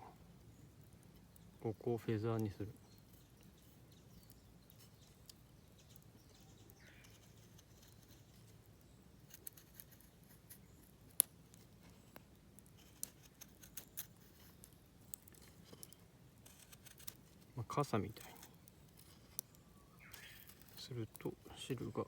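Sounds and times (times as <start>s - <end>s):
knife scraping wood: 9.3s - 10.8s, 12.7s - 14.6s, 15.3s - 17.3s.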